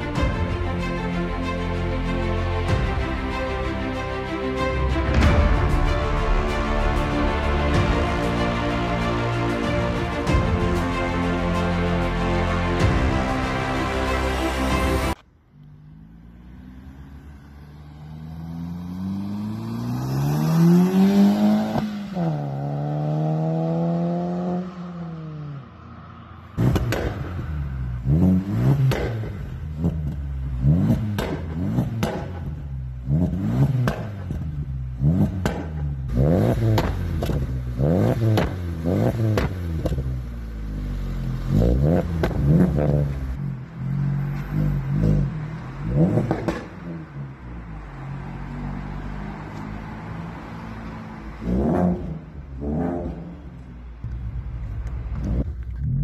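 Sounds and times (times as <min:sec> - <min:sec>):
car engine revving: 0:12.5 - 0:56.0
car engine accelerating hard: 0:13.8 - 0:25.6, 0:26.6 - 0:49.7.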